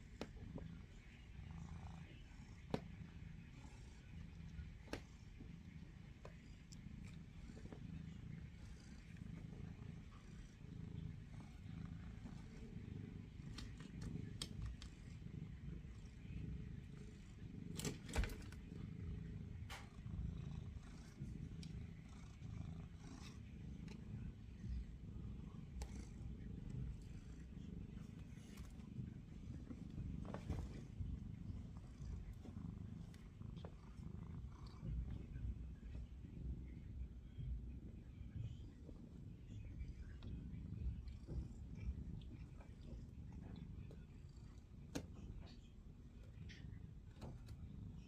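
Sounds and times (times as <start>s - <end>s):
faint clicks: 11.5s - 15.2s.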